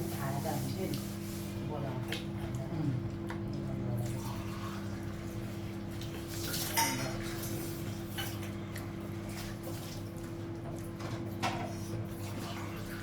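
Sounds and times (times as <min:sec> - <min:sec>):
dishes and cutlery clinking: 0:06.5 - 0:07.3.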